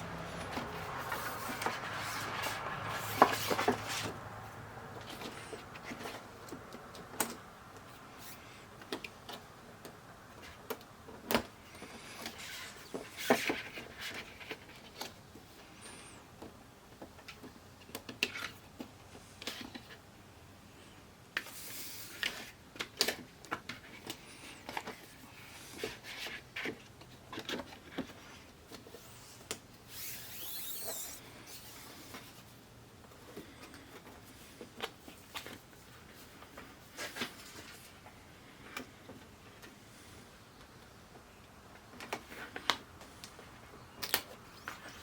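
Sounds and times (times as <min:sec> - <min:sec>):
sliding rubbing sound: 0:00.0 - 0:04.2, 0:28.9 - 0:32.5.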